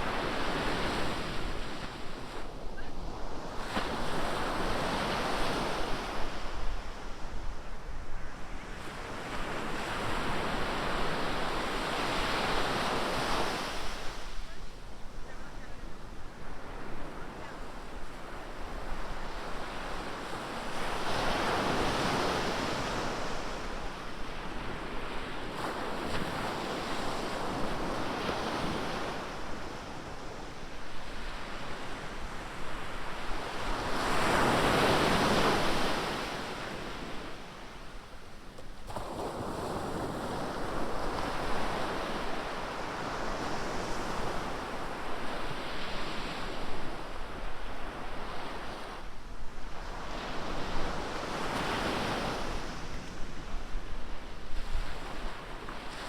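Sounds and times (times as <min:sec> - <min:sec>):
waves breaking on beach: 0:38.7 - 0:49.1.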